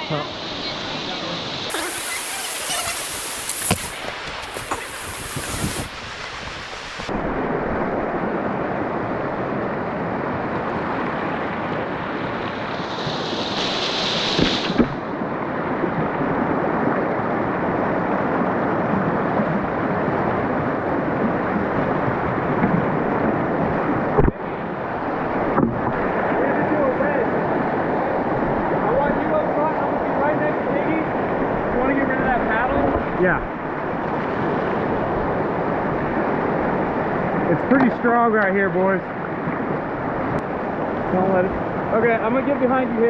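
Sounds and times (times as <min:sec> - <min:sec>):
river current rushing: 0:01.7 - 0:07.5.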